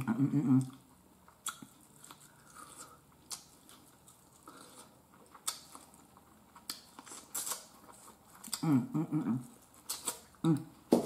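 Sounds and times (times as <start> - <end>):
chewing soft food: 0.5 - 10.6
lip-smacks: 1.3 - 3.5, 5.2 - 5.8.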